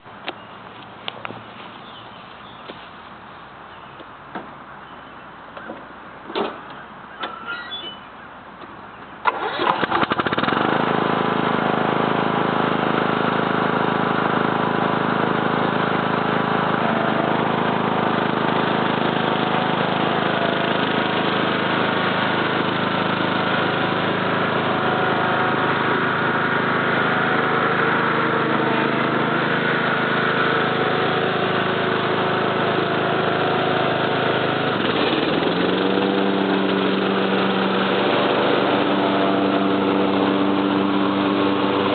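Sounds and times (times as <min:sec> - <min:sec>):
lawn tractor engine running: 0:00.0 - 0:41.9
engine starter cranking: 0:09.2 - 0:10.8.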